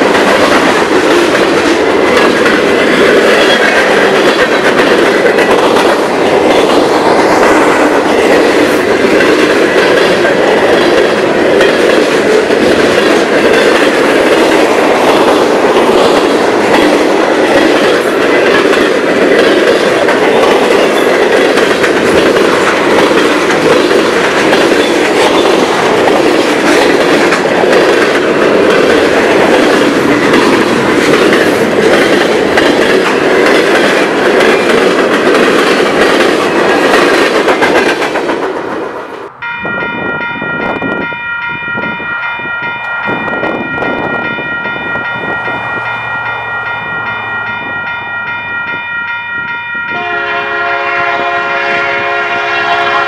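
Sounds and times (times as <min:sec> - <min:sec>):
train wheels clattering: 0:00.0 - 0:53.0
locomotive air horn: 0:49.9 - 0:53.0.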